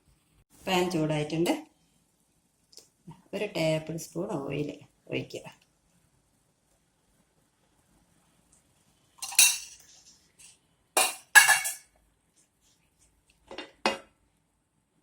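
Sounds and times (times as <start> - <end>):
metal utensils clinking: 9.2 - 11.8.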